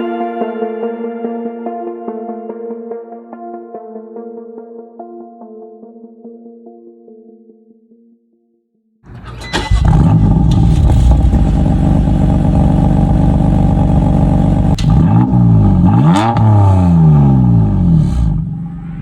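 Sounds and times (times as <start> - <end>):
car engine revving: 9.1 - 19.0.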